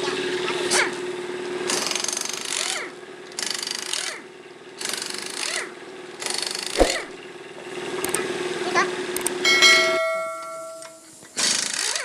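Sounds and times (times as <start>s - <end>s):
steady hum: 6.8s - 7.2s.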